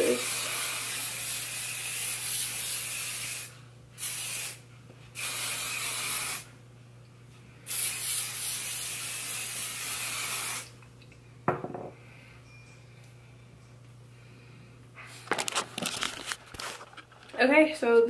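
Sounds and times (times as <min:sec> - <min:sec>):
hair mist spraying: 0:05.2 - 0:06.5, 0:07.7 - 0:10.7.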